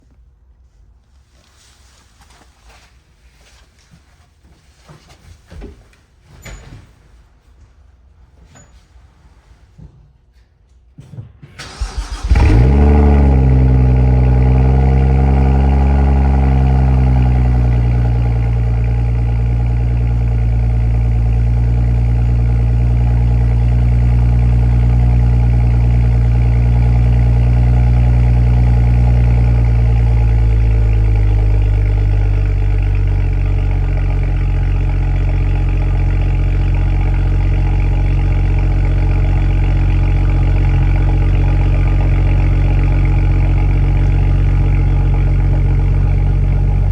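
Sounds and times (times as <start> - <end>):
car engine idling: 11.6 - 46.9.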